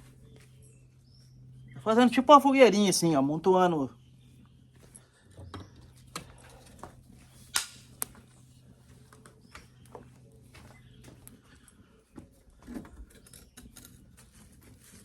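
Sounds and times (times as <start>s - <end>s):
twigs crackling in a campfire: 6.1s - 8.3s.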